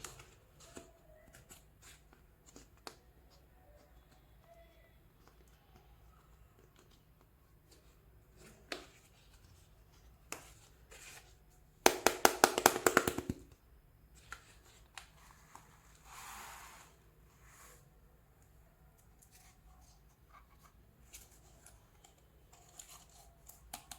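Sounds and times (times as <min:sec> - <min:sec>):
soft rustle: 0:14.1 - 0:23.6.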